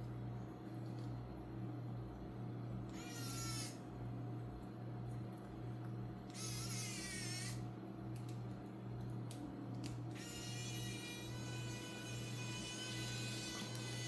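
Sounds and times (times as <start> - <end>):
steady low hum: 0.0 - 14.0
electric screwdriver whirring: 2.9 - 3.8, 6.3 - 7.6, 10.2 - 14.0.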